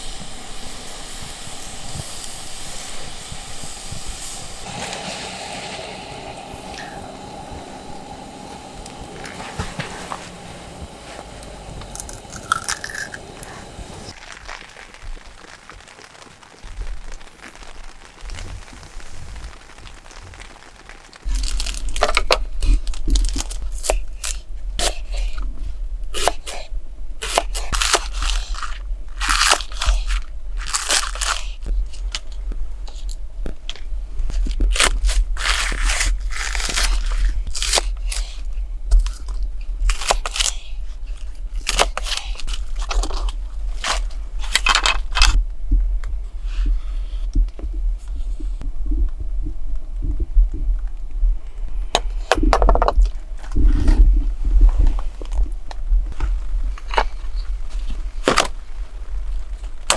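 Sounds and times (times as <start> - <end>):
crunching and crackling: 0.0 - 49.2, 49.8 - 59.9
low rumble: 2.6 - 14.2, 42.4 - 59.8.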